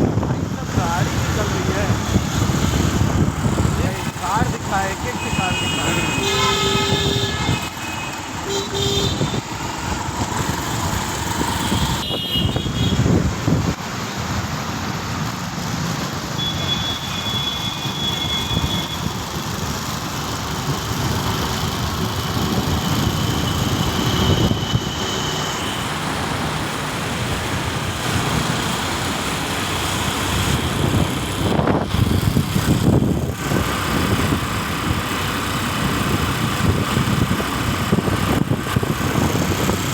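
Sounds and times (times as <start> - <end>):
car horn toot: 5.2 - 9.4, 12.0 - 13.0.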